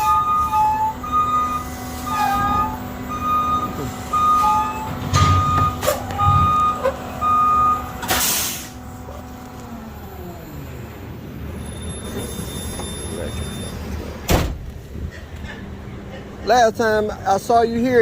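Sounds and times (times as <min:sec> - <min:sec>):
reversing alarm beeping: 0:00.0 - 0:08.9, 0:11.5 - 0:14.0
hiss of released air: 0:08.0 - 0:08.8.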